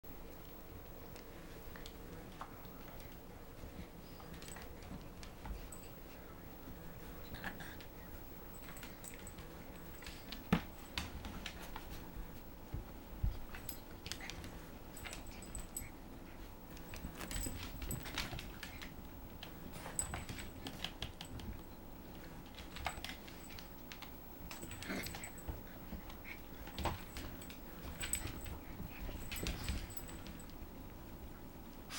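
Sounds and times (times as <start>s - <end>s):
puppy claws clicking on floor: 7.1s - 12.1s, 16.7s - 30.7s.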